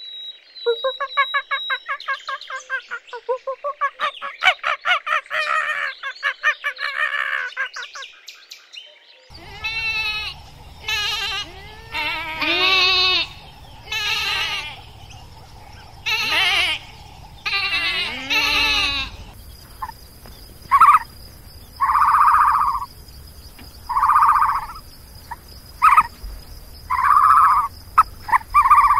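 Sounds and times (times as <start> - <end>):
rapid chattering calls: 9.3 - 28.9
steady high hiss: 9.3 - 28.9
lamb bleating: 9.4 - 14.8, 16.0 - 16.8, 17.5 - 19.2
animal short pulsed calls: 16.0 - 20.0, 25.8 - 26.1.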